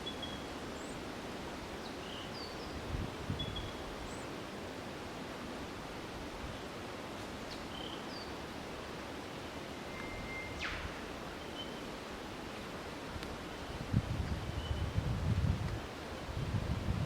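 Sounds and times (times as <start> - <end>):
steady outdoor hiss: 0.0 - 17.0
bird whistle with downward sweep: 9.8 - 11.8
birds chirping: 9.9 - 11.9.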